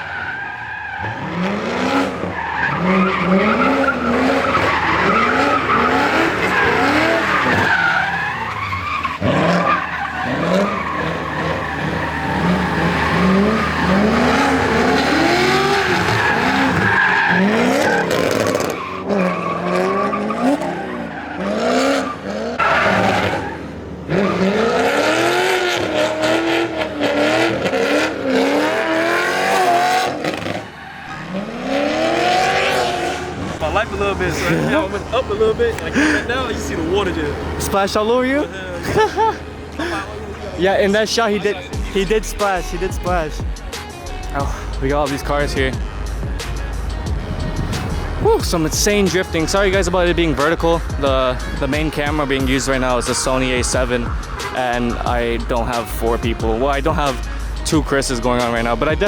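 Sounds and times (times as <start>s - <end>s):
tyre screech: 0.0s - 39.0s
car engines revving: 0.0s - 59.0s.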